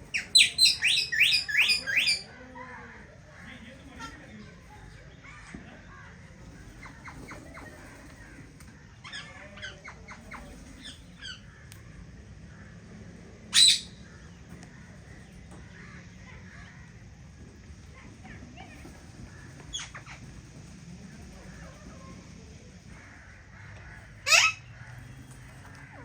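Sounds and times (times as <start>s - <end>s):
parakeets calling: 0.0s - 2.4s, 6.4s - 11.7s, 13.5s - 26.0s.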